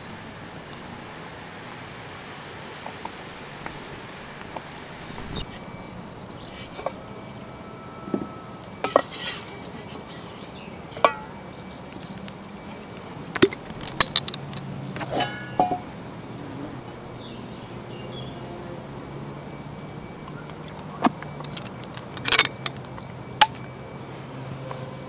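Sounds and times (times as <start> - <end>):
cookware clinking and knocking: 13.4 - 15.8, 21.3 - 22.9.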